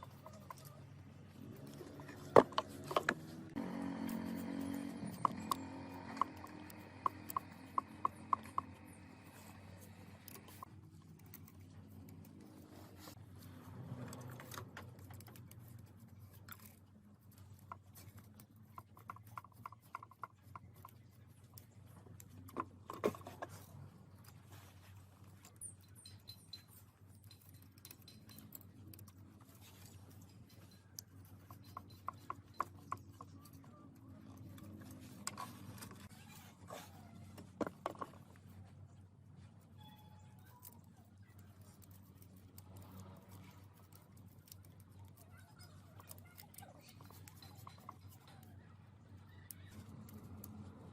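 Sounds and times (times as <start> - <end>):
clicks and taps of hand tools: 5.0 - 10.7.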